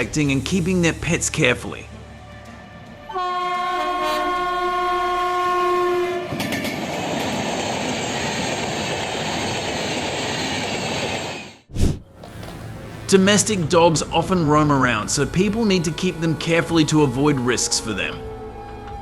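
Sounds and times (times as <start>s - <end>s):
train running on rails: 0.0s - 19.0s
train horn: 3.0s - 6.5s.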